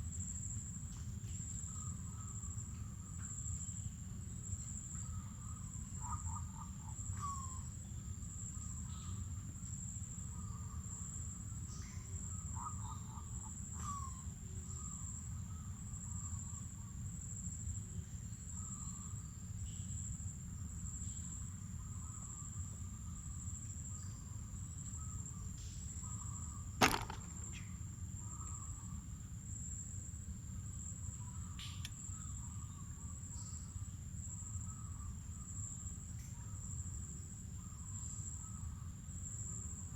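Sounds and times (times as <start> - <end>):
sharp snap: 26.8 - 27.4.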